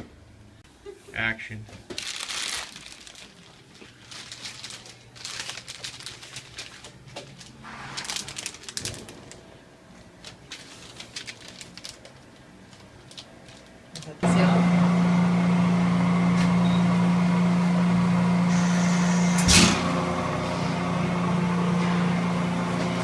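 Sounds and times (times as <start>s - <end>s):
hands handling food and packaging: 1.7s - 14.2s.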